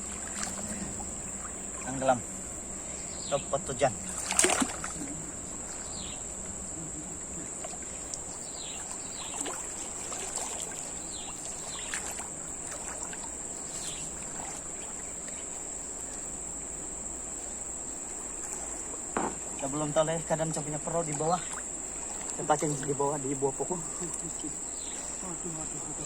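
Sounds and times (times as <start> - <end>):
faint chirps and ticks: 0.0 - 26.0
insect chorus drone: 0.0 - 26.0.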